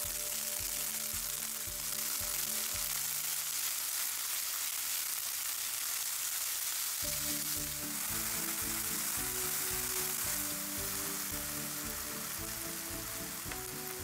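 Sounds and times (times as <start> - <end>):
background music with light beat: 0.0 - 3.6, 7.0 - 14.0
noodles and mushrooms sizzling: 0.0 - 14.0.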